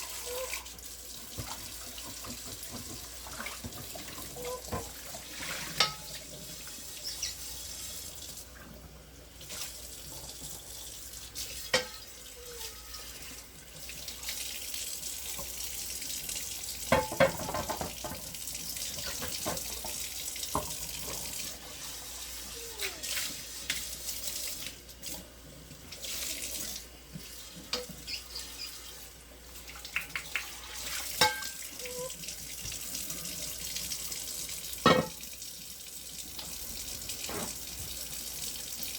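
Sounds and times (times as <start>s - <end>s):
tap running into sink: 16.9s - 21.3s.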